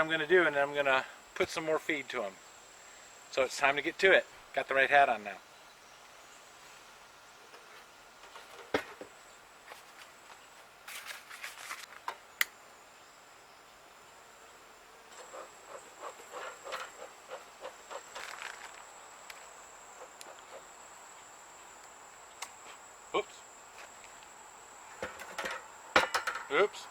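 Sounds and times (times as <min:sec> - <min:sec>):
rustling with light knocks: 0:07.5 - 0:12.2, 0:15.1 - 0:20.7
cricket trilling: 0:12.6 - 0:26.9.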